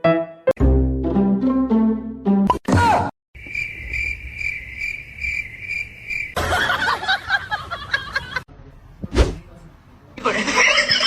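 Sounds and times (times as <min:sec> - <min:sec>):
cricket chirping: 0:03.4 - 0:07.2.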